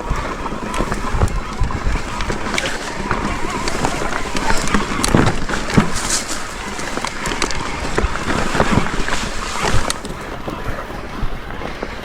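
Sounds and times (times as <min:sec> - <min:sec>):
bike rattling over rocks: 0:00.0 - 0:12.0
wind on microphone: 0:00.0 - 0:12.0.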